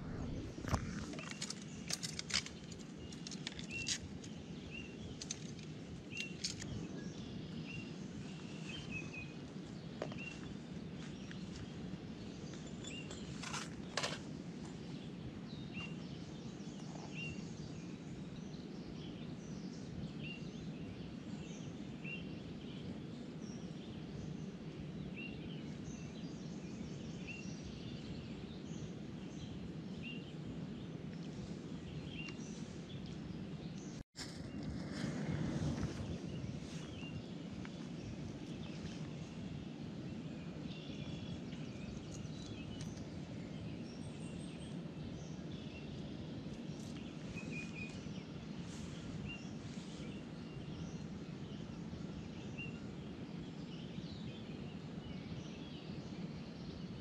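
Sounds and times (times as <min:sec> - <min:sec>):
bird chirping: 0:00.0 - 0:11.6, 0:36.3 - 0:52.9
low background rumble: 0:00.0 - 0:21.9
fishing rods and reels handled: 0:00.7 - 0:04.3.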